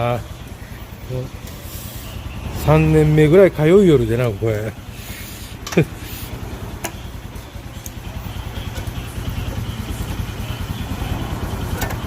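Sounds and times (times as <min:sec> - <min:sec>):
small car engine idling: 0:00.0 - 0:12.0.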